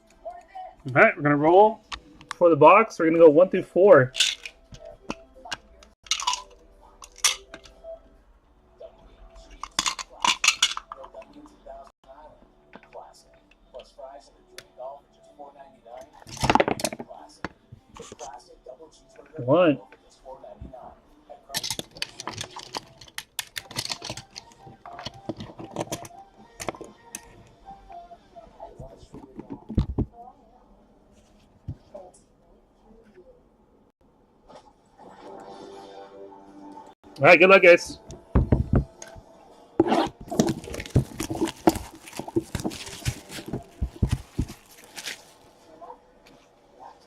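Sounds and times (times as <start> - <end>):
cards rustling: 40.1 - 45.6
wrappers crinkling and tearing: 40.2 - 45.6.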